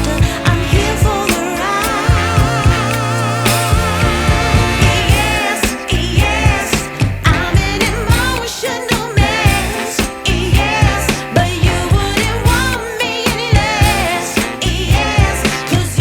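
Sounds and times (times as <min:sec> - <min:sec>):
pop music with singer: 0:00.0 - 0:16.0.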